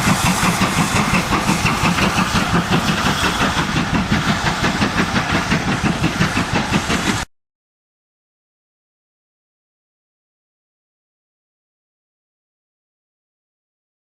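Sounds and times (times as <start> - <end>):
steam locomotive exhaust beats: 0.0 - 7.3.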